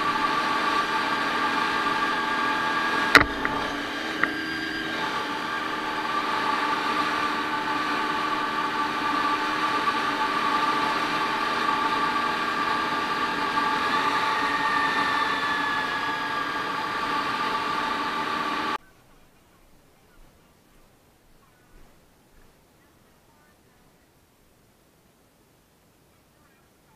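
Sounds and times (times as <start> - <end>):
motorcycle engine running: 0.0 - 18.8.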